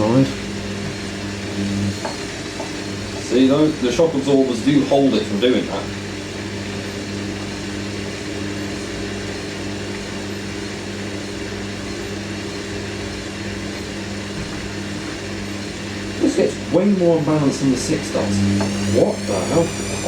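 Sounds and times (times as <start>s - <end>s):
washing machine spinning: 0.0s - 20.0s.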